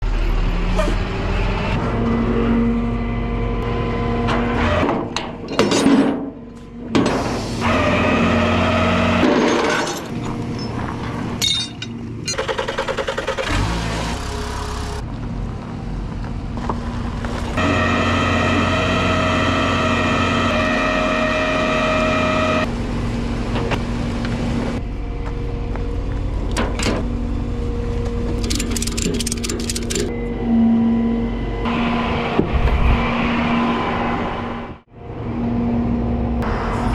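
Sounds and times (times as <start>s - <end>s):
metal clanks and knocks: 4.8s - 7.1s, 9.2s - 12.5s
clicks and rattles: 28.4s - 30.1s
steady machinery whine: 30.1s - 35.8s.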